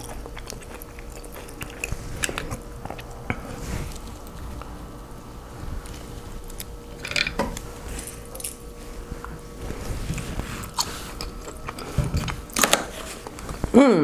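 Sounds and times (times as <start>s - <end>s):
wet chewing and biting: 0.0s - 3.4s.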